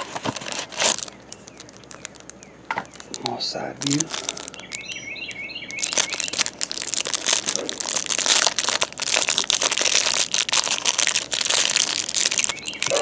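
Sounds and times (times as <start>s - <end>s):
plastic wrapper crinkling: 0.0s - 13.0s
bird chirping: 1.1s - 7.0s, 12.1s - 13.0s.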